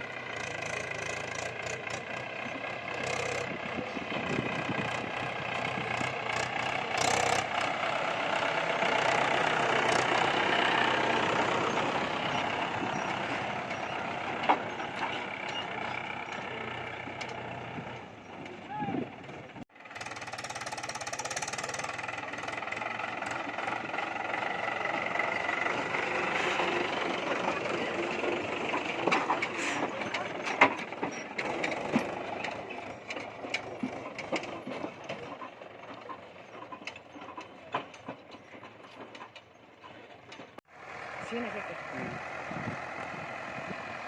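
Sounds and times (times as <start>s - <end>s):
tractor diesel engine running: 0.0s - 44.0s
sharp knocks and clatter: 28.1s - 40.6s.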